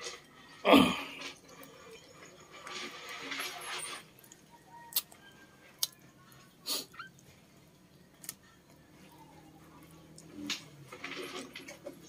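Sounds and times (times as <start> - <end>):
person chewing: 5.8 - 6.0.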